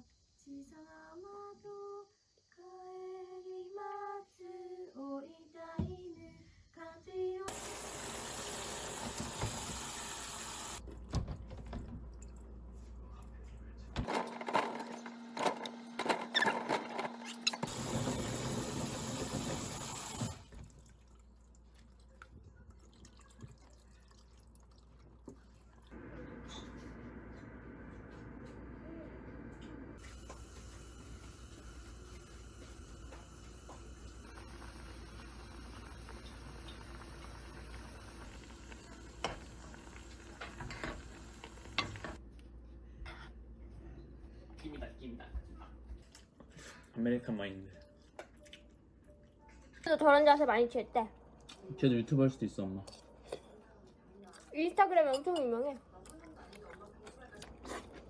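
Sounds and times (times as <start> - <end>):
water running: 7.5 - 10.8, 17.6 - 26.0, 30.0 - 42.2
food simmering in a pan: 30.0 - 42.2.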